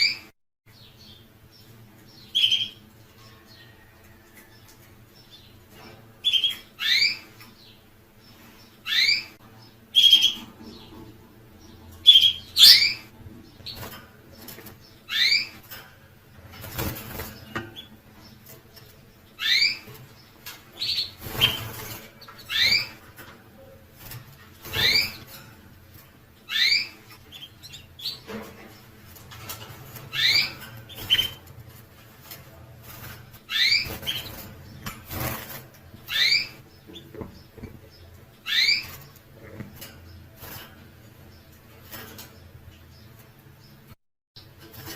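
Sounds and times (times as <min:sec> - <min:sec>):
finch chirping: 0:00.0 - 0:03.3, 0:05.2 - 0:44.9.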